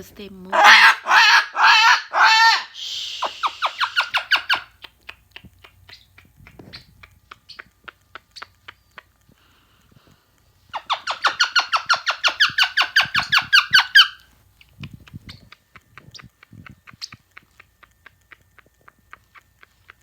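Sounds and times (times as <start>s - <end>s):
parrot squeaky calls: 0.5s - 5.2s, 5.9s - 8.8s, 10.7s - 17.2s
faint clicks and rustles: 4.8s - 10.8s, 12.3s - 20.0s.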